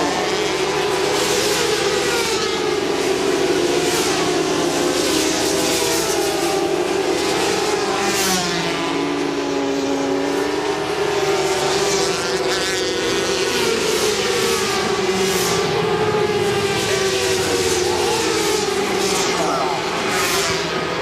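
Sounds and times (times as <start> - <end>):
racing motorcycles passing: 0.0 - 21.0.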